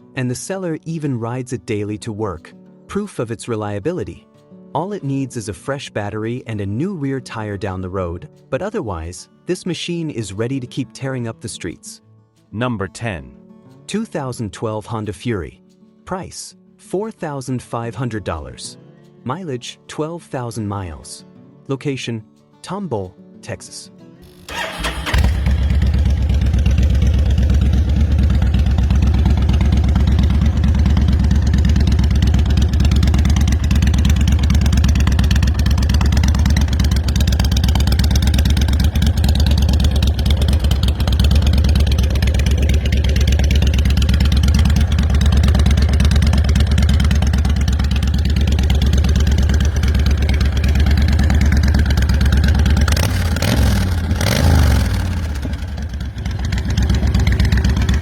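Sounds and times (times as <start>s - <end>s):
motorcycle engine running: 24.2s - 58.0s.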